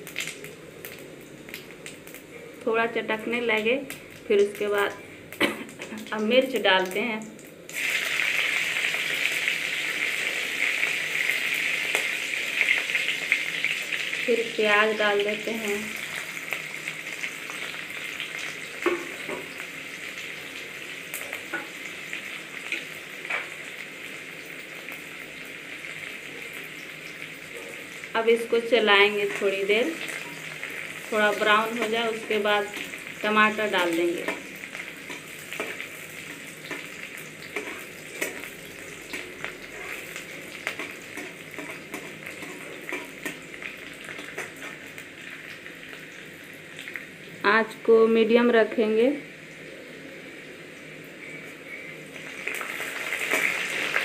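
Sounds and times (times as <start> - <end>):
oil crackles: 0.0 - 2.7, 29.1 - 47.2, 52.2 - 54.0
vegetables sizzling in hot oil: 0.0 - 54.0
steel spatula scraping: 37.6 - 38.5.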